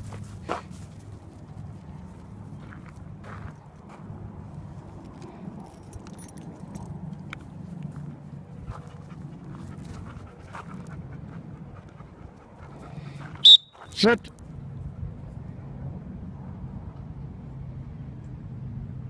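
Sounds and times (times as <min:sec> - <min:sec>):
dogs playing: 0:05.1 - 0:13.4.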